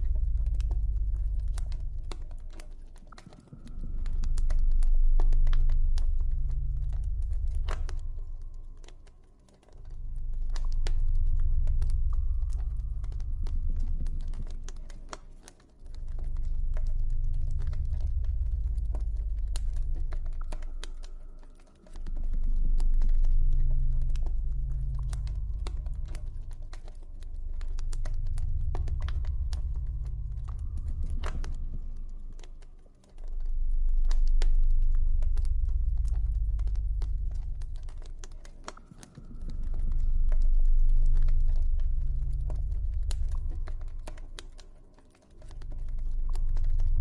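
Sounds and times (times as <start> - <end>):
deep low rumble: 0.0 - 47.0
campfire crackling and popping: 22.0 - 44.8.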